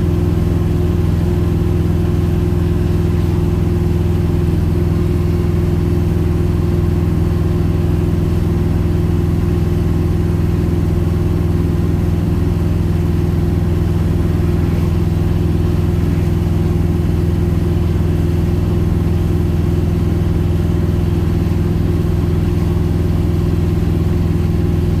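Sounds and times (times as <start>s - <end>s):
car engine cruising drone: 0.0s - 25.0s.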